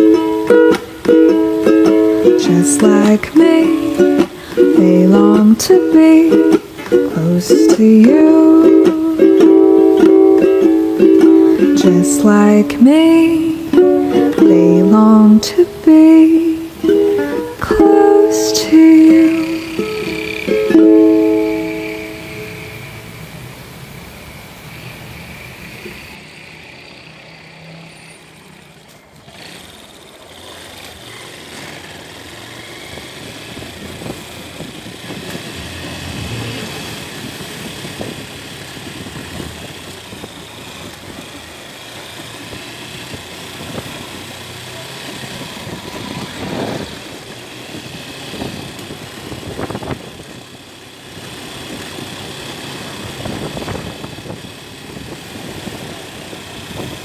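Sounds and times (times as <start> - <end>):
road noise: 0.0 - 57.0
motorcycle engine running: 18.9 - 22.8, 26.1 - 57.0.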